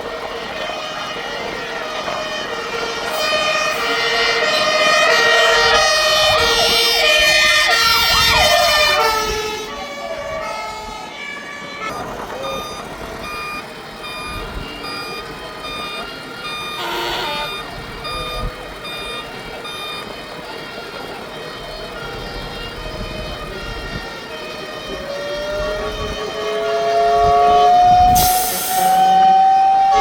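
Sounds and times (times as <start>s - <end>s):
two-tone fire engine sirens: 0.0s - 30.0s
wailing siren: 0.0s - 30.0s.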